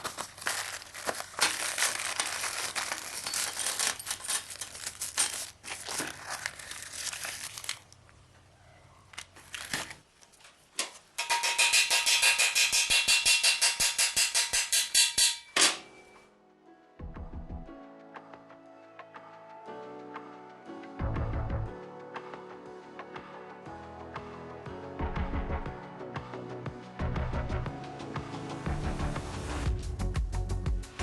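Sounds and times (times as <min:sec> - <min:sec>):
crinkling and rustling: 0:00.0 - 0:11.2.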